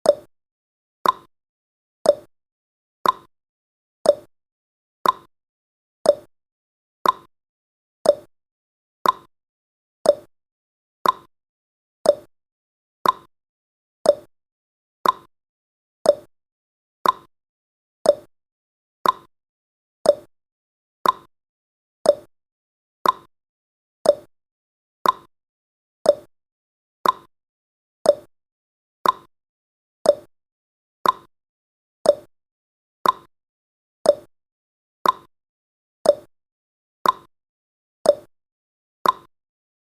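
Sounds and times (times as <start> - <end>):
clock ticking: 3.0 - 3.3, 5.0 - 5.3, 7.0 - 7.3, 9.0 - 9.3, 11.0 - 11.3, 13.0 - 13.3, 15.0 - 15.3, 16.1 - 16.3, 17.0 - 17.3, 19.0 - 19.3, 21.0 - 21.3, 22.1 - 22.3, 23.0 - 23.3, 24.0 - 24.3, 25.0 - 25.3, 26.1 - 26.3, 27.0 - 27.3, 28.1 - 28.3, 29.0 - 29.3, 30.1 - 30.3, 31.0 - 31.3, 32.1 - 32.3, 33.0 - 33.3, 34.1 - 34.3, 35.0 - 35.3, 36.1 - 36.3, 37.0 - 37.3, 38.1 - 38.3, 39.0 - 39.3.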